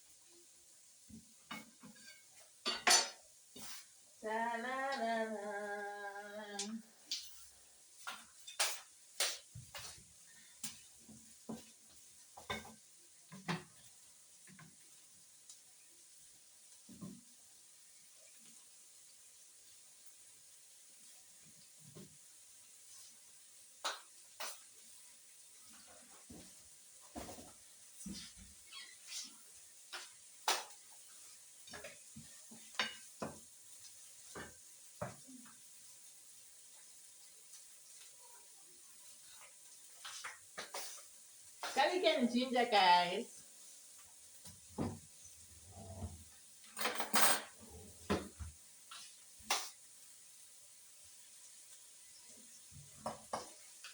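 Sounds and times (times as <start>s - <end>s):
utensils and dishes clinking: 1.5s - 3.2s, 46.7s - 47.6s.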